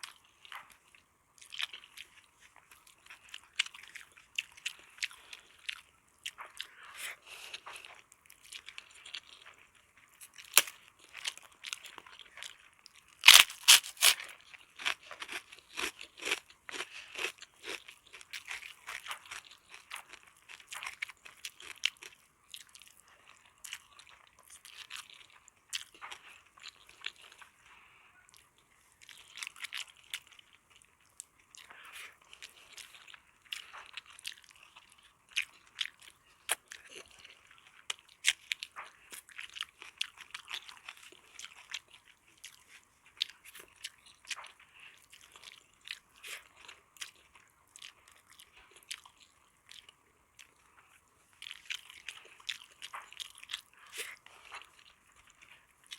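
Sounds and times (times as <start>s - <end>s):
person crunching and chewing: 0.0s - 55.9s
loud crisp bite with crackles: 10.5s - 10.8s, 13.2s - 16.8s
wet mouth sounds: 13.3s - 14.2s.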